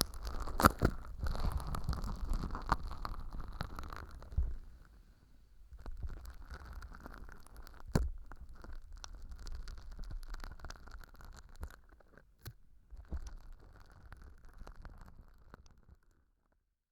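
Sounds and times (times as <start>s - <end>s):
sticky slime crackling and squelching: 0.0s - 4.4s.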